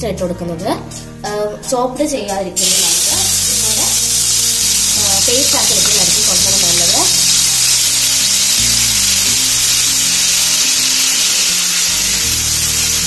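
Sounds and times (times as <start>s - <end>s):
background music low held notes: 0.0s - 13.0s
onion paste sizzling in oil: 2.6s - 13.0s.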